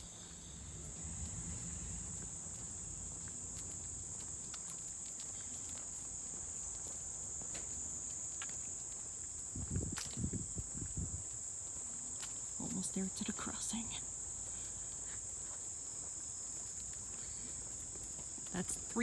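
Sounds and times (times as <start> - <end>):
low rumble: 0.0 - 5.0
insects chorus: 0.0 - 19.0.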